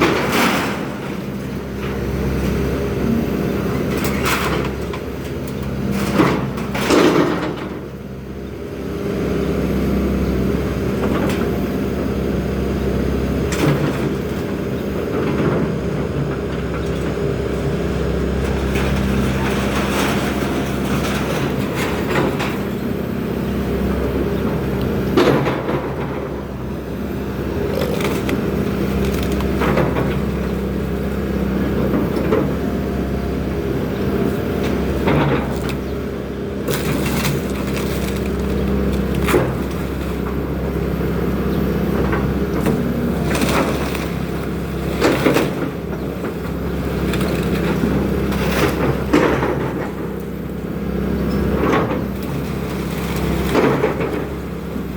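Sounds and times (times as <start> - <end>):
excavator engine running: 0.0 - 54.9
breaking wood cracking: 27.6 - 30.3, 36.7 - 40.2.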